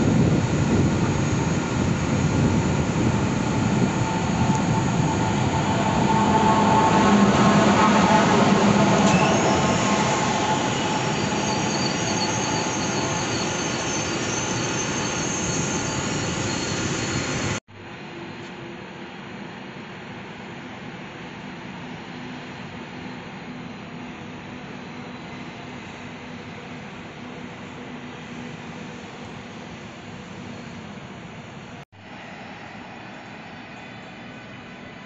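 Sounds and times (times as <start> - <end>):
train rumbling past: 0.0 - 17.6
quiet station background: 0.0 - 35.0
high wheel squeal: 3.4 - 17.6.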